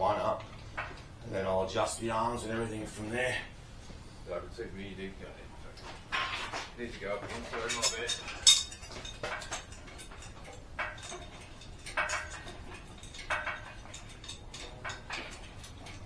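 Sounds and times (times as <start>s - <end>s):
metallic clicks and knocks: 0.2s - 1.3s, 5.8s - 16.0s.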